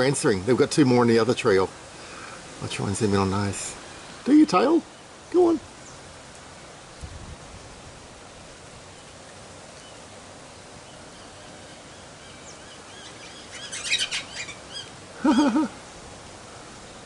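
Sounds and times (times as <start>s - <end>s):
wind noise: 6.9s - 8.2s
parrots chirping: 11.1s - 15.0s.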